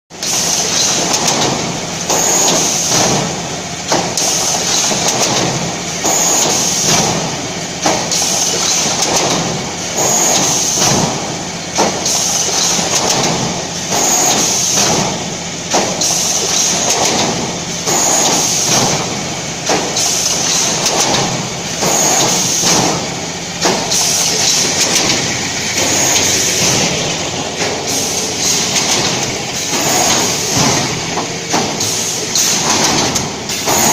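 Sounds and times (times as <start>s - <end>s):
machine clicks and knocks: 0.2s - 33.9s
welding machine running: 0.2s - 33.9s
high-pitched burst: 25.7s - 27.3s.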